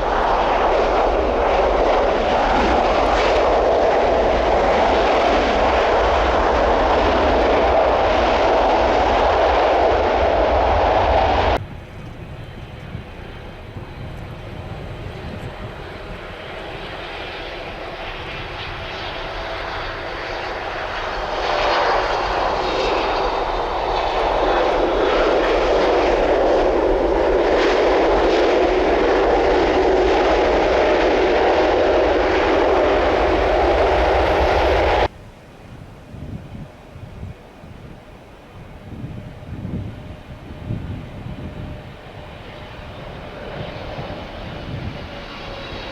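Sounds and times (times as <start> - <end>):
jet airliner passing: 0.0 - 35.1, 37.9 - 45.9.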